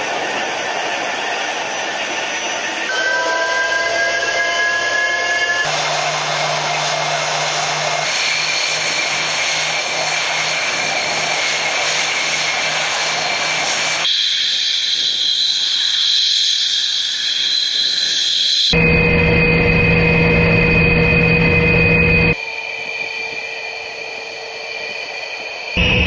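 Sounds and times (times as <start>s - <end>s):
high jet whine: 0.0s - 26.0s
jet fighter rush: 5.6s - 14.1s.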